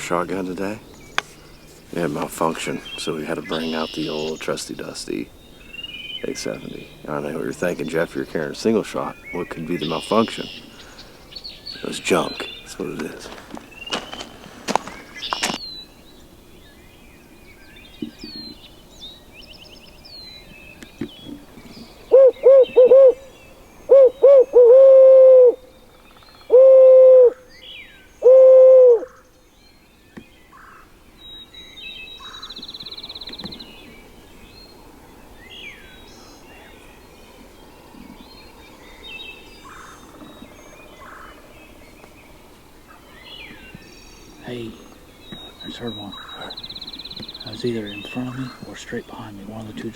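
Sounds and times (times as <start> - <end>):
small birds chirping faintly: 0.0 - 24.7, 25.5 - 49.9
owl hoots: 22.0 - 23.3, 23.9 - 25.7, 26.4 - 27.5, 28.2 - 29.2.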